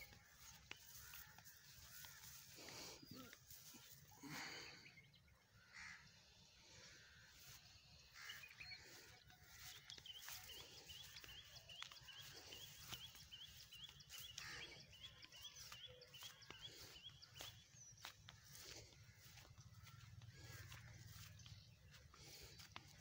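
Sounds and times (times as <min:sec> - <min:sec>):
faint bird chirping: 0:00.0 - 0:23.0.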